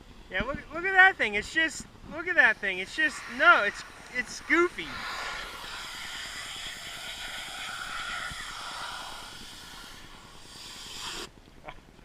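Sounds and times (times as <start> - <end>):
pressure washer spray hissing: 2.2 - 11.3.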